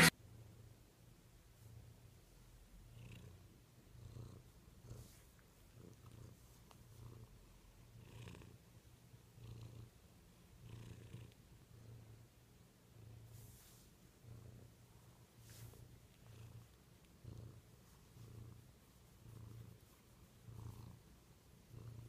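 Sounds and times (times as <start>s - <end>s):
cat purring: 1.5s - 22.0s
fingers rustling in fur: 13.3s - 14.1s, 15.3s - 21.2s.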